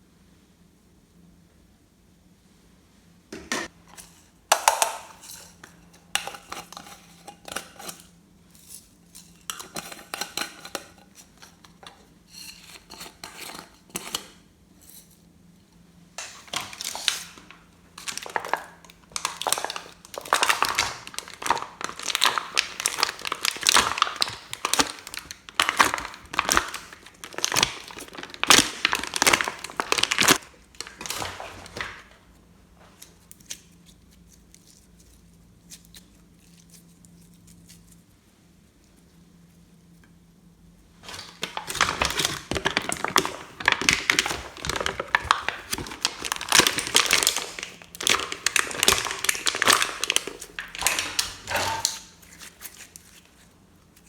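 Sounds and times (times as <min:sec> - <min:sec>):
slime squishing and crackling: 0:16.2 - 0:32.0, 0:41.0 - 0:54.0.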